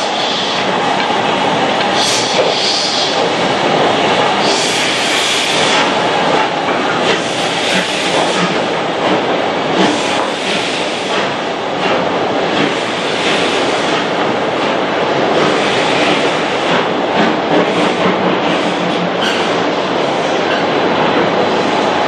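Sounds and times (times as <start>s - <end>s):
steam hiss: 0.0s - 1.2s, 1.8s - 3.4s, 4.3s - 8.8s, 9.8s - 14.1s
steam train rumble and rail clatter: 0.0s - 22.0s.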